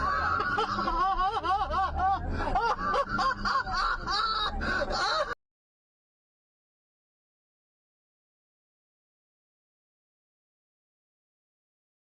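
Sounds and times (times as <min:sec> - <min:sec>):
person laughing in high bursts: 0:00.0 - 0:05.4.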